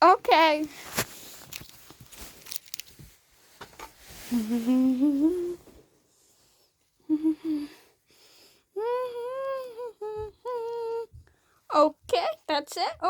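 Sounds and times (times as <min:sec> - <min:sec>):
child humming: 0:04.3 - 0:05.6, 0:07.1 - 0:07.8, 0:08.8 - 0:11.2.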